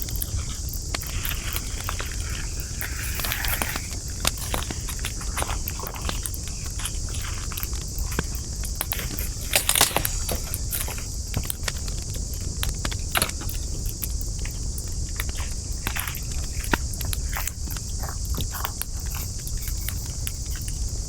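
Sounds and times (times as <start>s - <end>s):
steady high hiss: 0.0s - 11.9s
campfire wood crackling: 0.0s - 19.0s.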